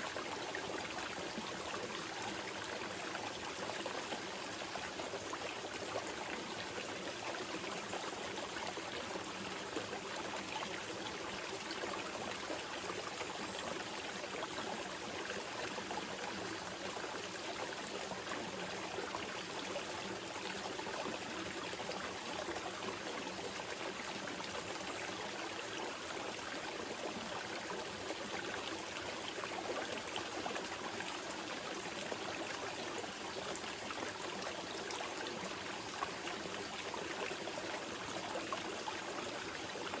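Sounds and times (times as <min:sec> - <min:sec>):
water trickles and splashes: 0:00.0 - 0:40.0.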